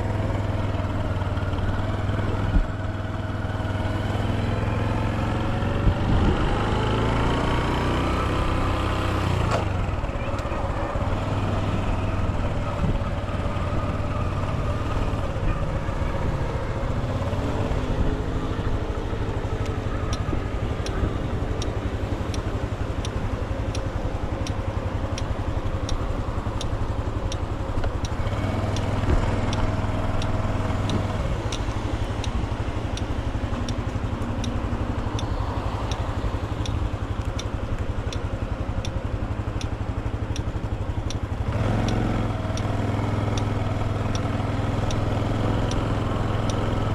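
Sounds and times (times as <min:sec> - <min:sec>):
motorcycle engine running: 0:00.0 - 0:46.9
light regular ticking: 0:19.5 - 0:46.9.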